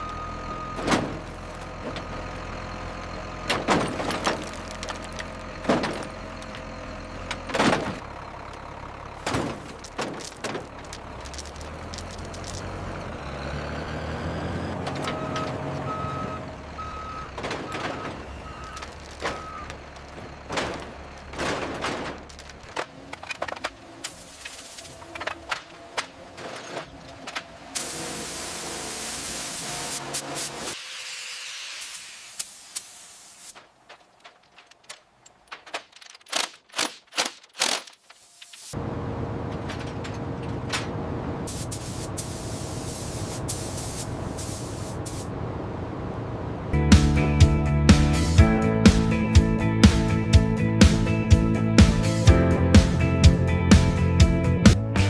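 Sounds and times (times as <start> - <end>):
metallic clanks and knocks: 17.3 - 23.8.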